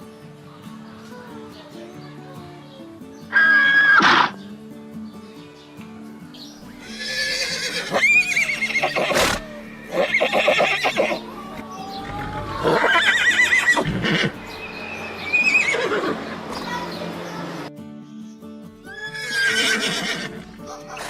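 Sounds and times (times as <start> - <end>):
horses neighing: 3.3 - 4.4, 6.8 - 14.4, 15.2 - 16.3, 18.9 - 21.0.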